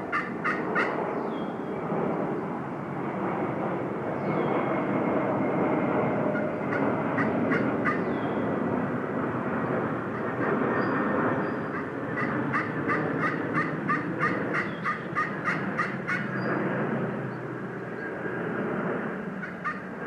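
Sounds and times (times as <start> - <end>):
steady rushing background noise: 0.0 - 20.0
wild turkey yelping: 0.1 - 1.0, 6.7 - 8.1, 11.7 - 16.3, 19.4 - 19.8.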